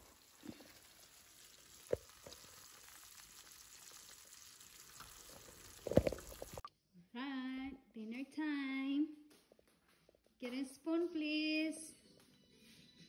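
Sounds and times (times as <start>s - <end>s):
food sizzling in a frying pan: 0.0s - 6.7s.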